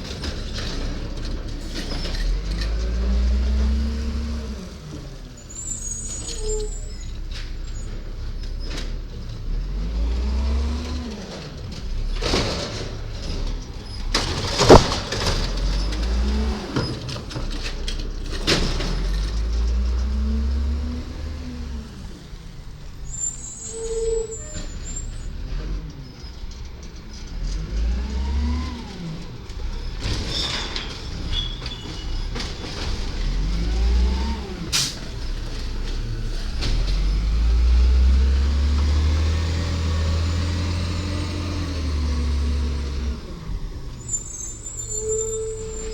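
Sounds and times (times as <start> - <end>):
garbage truck engine revving: 0.0 - 23.7, 24.6 - 45.9
sharp bangs: 14.4 - 15.7.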